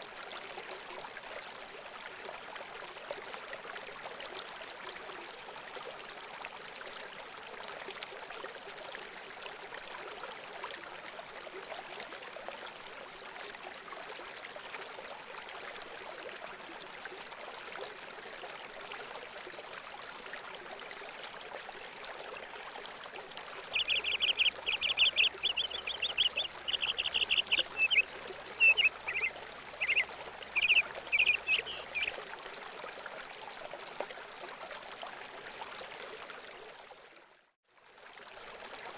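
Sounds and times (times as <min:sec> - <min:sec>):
running water: 0:00.0 - 0:37.2
bird chattering call: 0:23.8 - 0:28.0, 0:28.6 - 0:30.0, 0:30.6 - 0:32.1.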